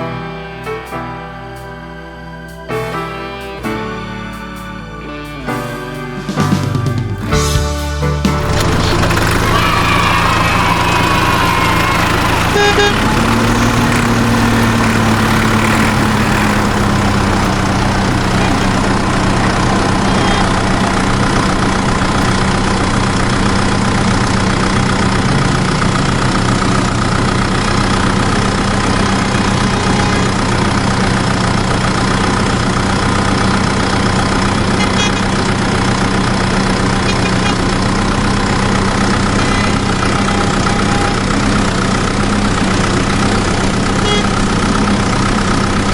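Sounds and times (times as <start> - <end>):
vehicle engine idling: 7.4 - 45.9.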